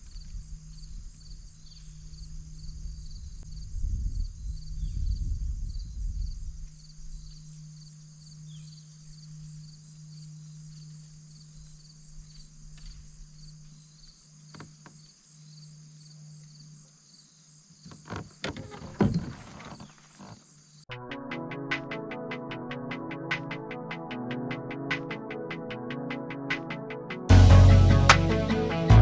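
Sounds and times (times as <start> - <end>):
insects trilling: 6.6 - 18.6.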